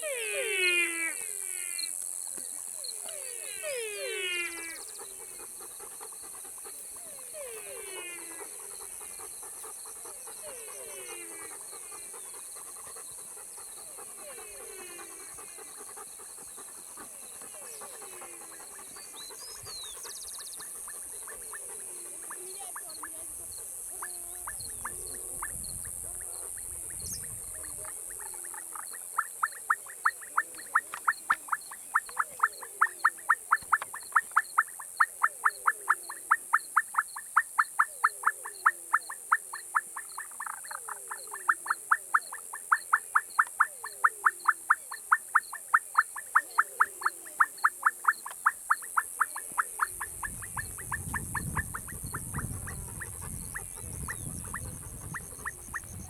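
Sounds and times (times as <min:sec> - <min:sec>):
short falling frog calls: 0:00.0 - 0:02.2, 0:02.8 - 0:19.3, 0:24.0 - 0:56.0
high insect drone: 0:00.0 - 0:35.2, 0:44.3 - 0:56.0
frog rapid sharp calls: 0:00.0 - 0:56.0.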